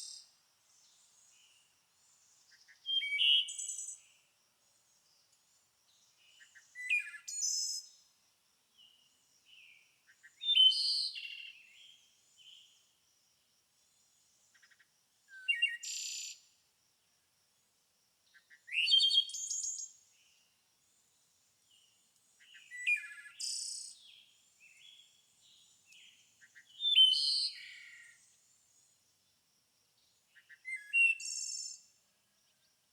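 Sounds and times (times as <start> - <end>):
songbird singing: 0.0 - 13.0, 13.8 - 16.6, 18.2 - 32.9.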